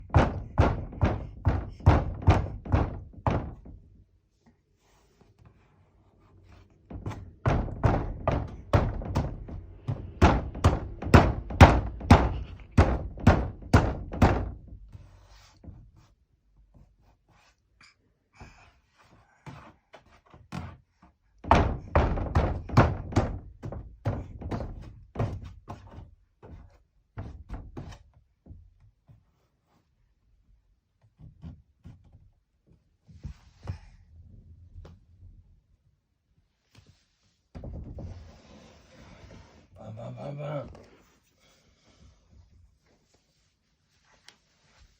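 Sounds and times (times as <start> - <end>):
knocking on a door: 0.0 - 3.9, 6.8 - 15.0, 21.4 - 28.6, 37.5 - 38.2.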